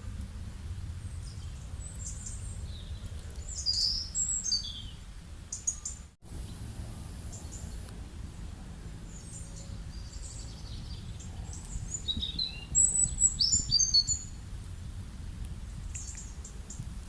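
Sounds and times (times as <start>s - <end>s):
low background rumble: 0.0s - 17.0s
small birds chirping: 1.0s - 7.9s, 9.1s - 14.4s, 15.9s - 16.9s.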